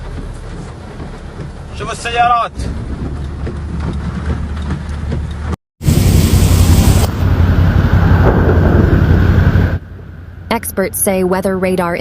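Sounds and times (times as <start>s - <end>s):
wind buffeting microphone: 0.0s - 10.2s
heavy rain: 5.8s - 9.8s.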